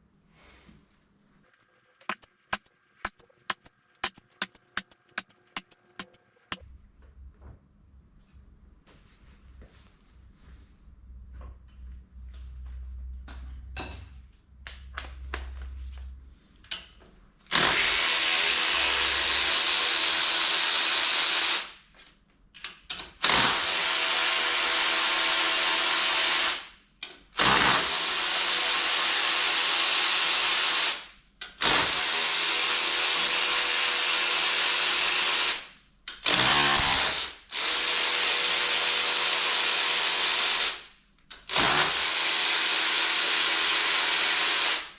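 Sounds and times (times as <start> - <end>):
power tool bursts: 17.5 - 21.7, 36.2 - 40.8, 41.5 - 44.9.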